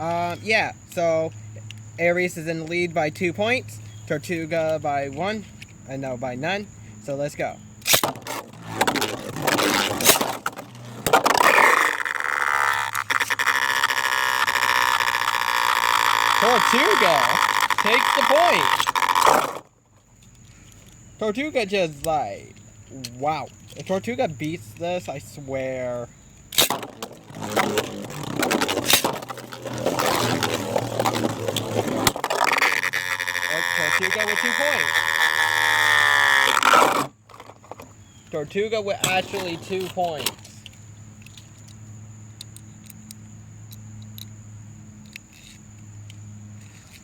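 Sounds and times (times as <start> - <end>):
low hum of spinning tops: 0.0 - 20.3, 21.1 - 46.7
spinning tops whirring: 7.8 - 19.6, 26.5 - 37.1
spinning tops clacking: 11.4 - 19.3.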